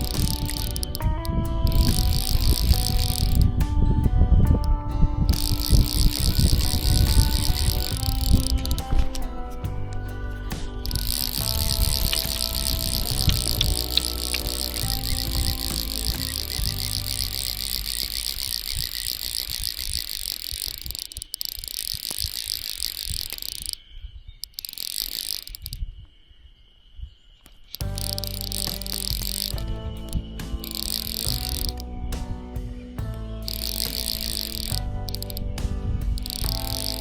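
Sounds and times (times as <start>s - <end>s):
insects trilling: 0.0s - 4.6s, 5.2s - 31.9s, 33.4s - 35.4s, 36.1s - 37.0s
background music: 0.0s - 18.4s, 27.8s - 37.0s.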